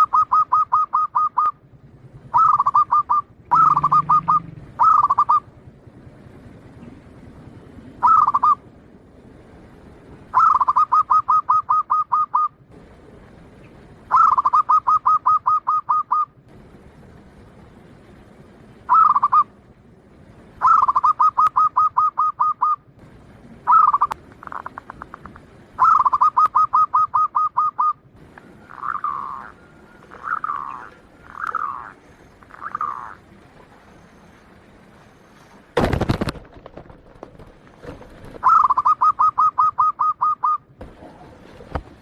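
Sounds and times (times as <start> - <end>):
dove cooing: 0.0 - 5.5, 8.0 - 8.6, 10.3 - 12.5, 14.1 - 16.3, 18.8 - 19.5, 20.6 - 22.8, 23.6 - 34.3, 37.8 - 42.0.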